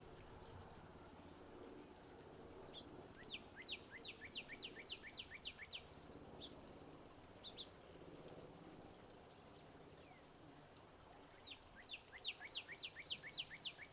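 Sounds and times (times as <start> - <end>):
faint background hiss: 0.0 - 13.9
warbler singing: 2.7 - 7.7, 11.4 - 13.9.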